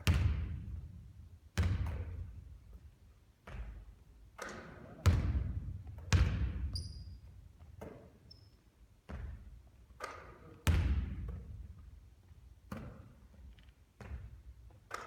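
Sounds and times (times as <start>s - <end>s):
basketball bouncing on gym floor: 0.0s - 2.8s, 3.4s - 8.1s, 9.0s - 11.6s, 14.0s - 15.0s.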